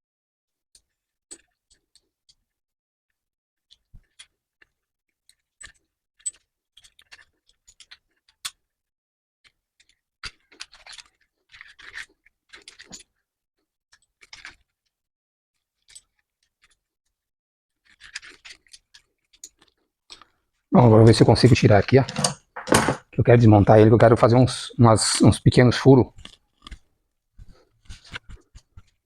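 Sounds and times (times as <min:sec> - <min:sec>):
metal scraping: 0:20.8 - 0:23.1.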